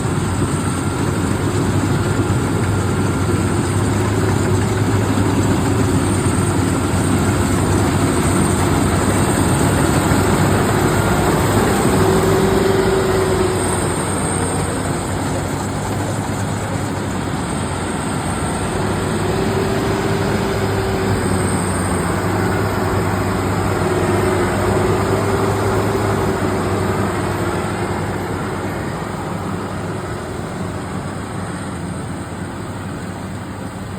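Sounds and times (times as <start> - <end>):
harvester engine running: 0.0 - 33.9.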